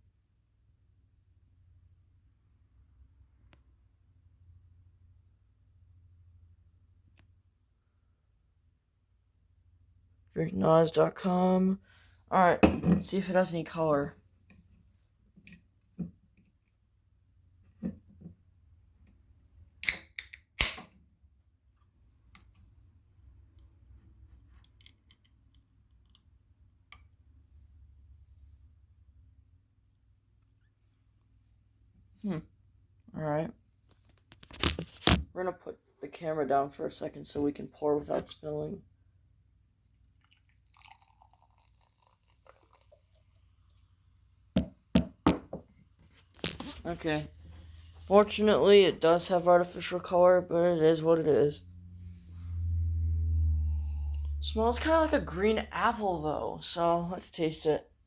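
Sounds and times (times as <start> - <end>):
drink gurgling from can: 40.2 - 43.5.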